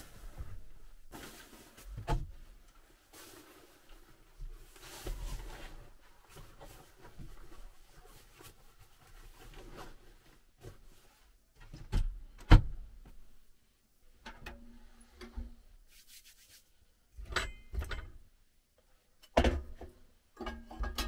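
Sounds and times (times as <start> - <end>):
soft rustling: 0.0 - 11.6, 15.8 - 17.0.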